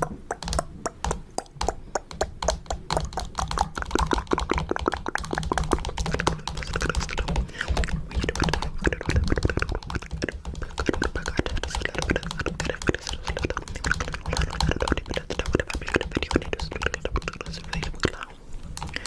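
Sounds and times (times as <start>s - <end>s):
fingernail tapping on camera: 0.0s - 18.1s.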